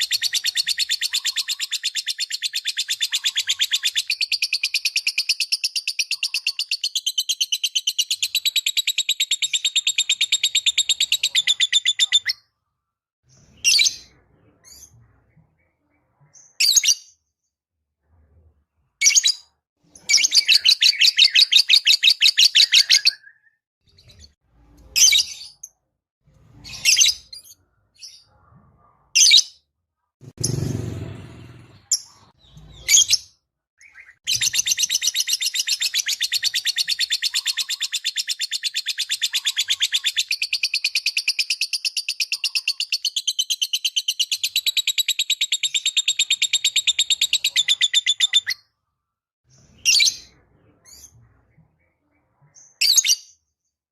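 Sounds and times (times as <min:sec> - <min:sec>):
lovebird chattering: 0:00.0 - 0:12.4.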